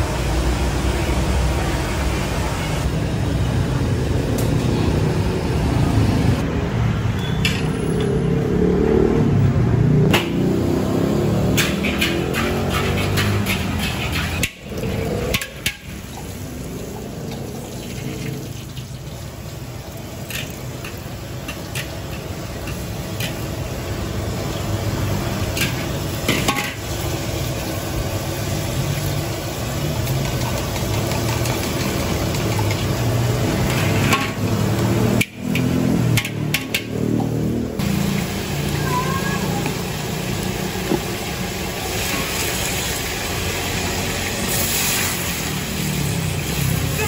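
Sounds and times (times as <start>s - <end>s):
metal spatula scraping wok: 11.4s - 15.9s, 33.5s - 36.9s
egg sizzling in hot oil: 11.4s - 36.9s, 37.8s - 46.9s.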